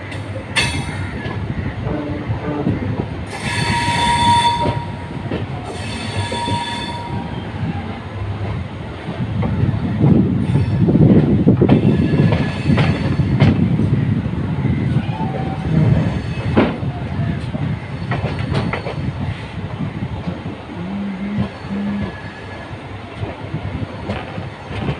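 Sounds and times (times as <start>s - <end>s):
train wheels rumbling and clattering: 0.0s - 24.9s
high squeals: 3.3s - 7.7s.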